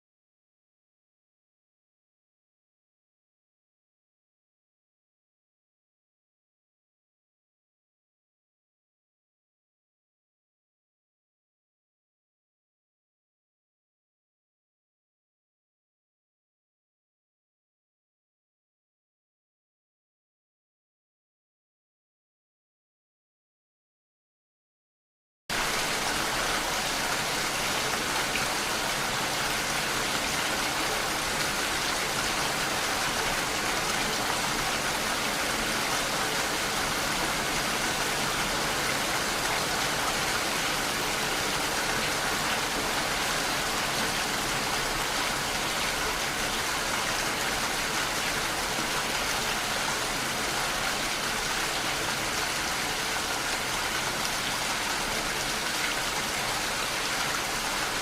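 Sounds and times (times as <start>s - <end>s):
steady rain hiss: 25.5s - 58.0s.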